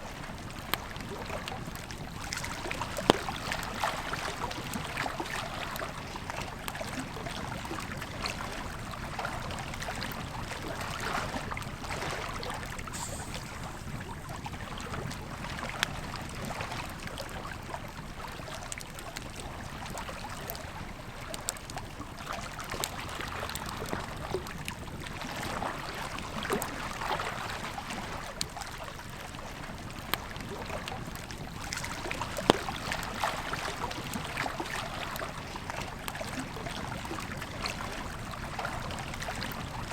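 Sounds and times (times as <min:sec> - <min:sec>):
river flowing: 0:10.6 - 0:15.8
campfire crackling and popping: 0:12.6 - 0:16.2, 0:31.0 - 0:35.2.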